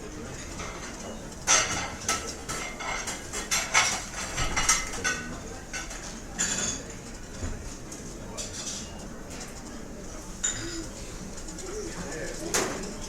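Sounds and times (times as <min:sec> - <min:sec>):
low murmur of voices: 0:00.0 - 0:13.0
silverware clinking on plates: 0:00.2 - 0:07.5, 0:08.3 - 0:09.7, 0:10.4 - 0:11.2.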